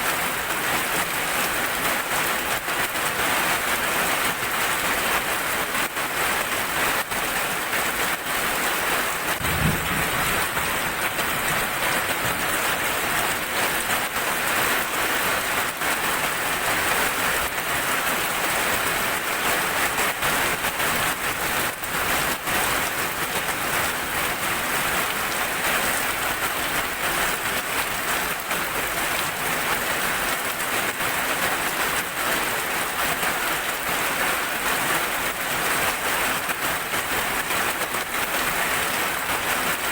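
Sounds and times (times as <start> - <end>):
steady rain falling: 0.0 - 39.9
low thump: 9.4 - 11.3.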